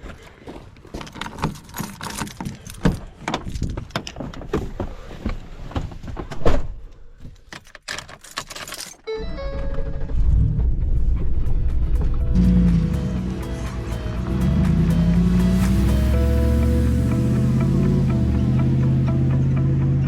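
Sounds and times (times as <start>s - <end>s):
keys jangling: 1.0s - 3.0s, 7.6s - 9.1s
music: 11.0s - 20.0s.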